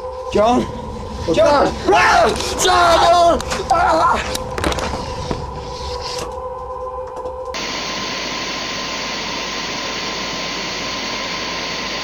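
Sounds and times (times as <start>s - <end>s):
faint steady hum: 7.6s - 12.0s
steady hiss: 7.6s - 12.0s.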